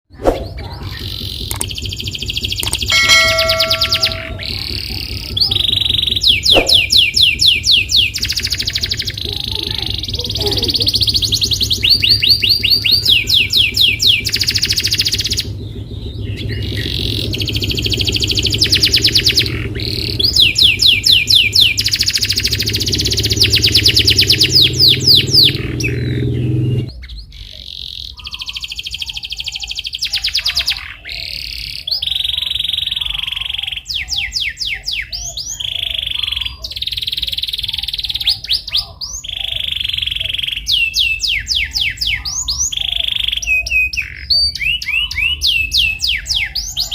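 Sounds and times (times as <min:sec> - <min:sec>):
canary singing trills: 0:00.4 - 0:46.9
low steady hum: 0:02.6 - 0:05.3.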